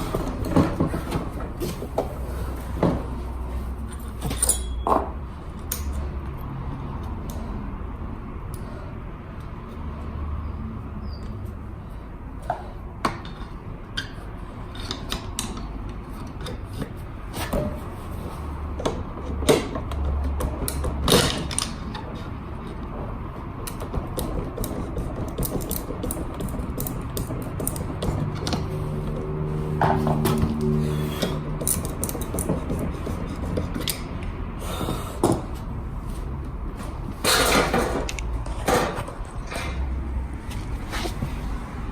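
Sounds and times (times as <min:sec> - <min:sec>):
metal hand tools clicking and knocking: 0:23.6 - 0:28.7, 0:31.6 - 0:34.3.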